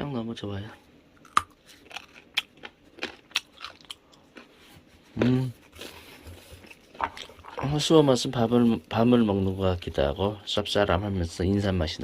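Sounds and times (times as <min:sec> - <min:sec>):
crunchy chewing: 0:01.2 - 0:07.7.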